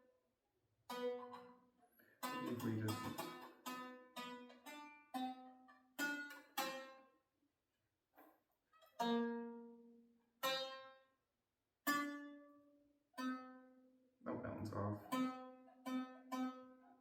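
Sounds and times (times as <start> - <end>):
plucked string notes: 0.9 - 7.1, 8.9 - 11.1, 11.8 - 17.0.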